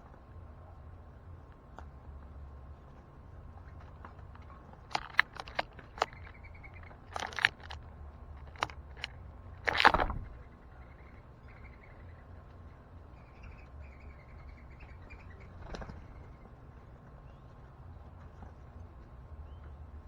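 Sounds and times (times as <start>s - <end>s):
birds tapping at feeder: 4.4s - 7.8s, 8.4s - 10.4s.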